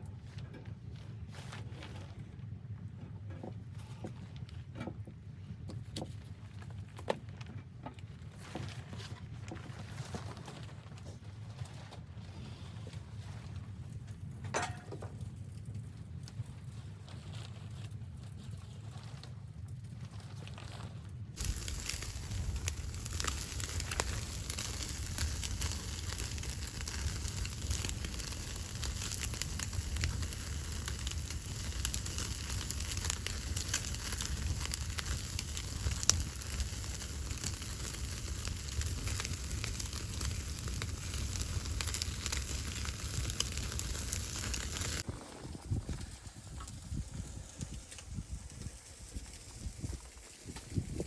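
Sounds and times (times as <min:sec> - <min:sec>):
wood fire crackling and popping: 0:14.0 - 0:16.8, 0:19.6 - 0:51.0.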